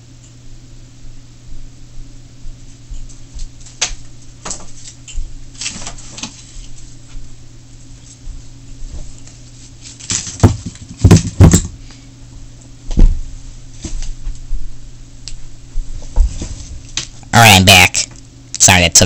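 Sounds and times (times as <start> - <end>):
steady low hum: 0.0 - 19.0
loud knocks and thumps: 10.3 - 11.8.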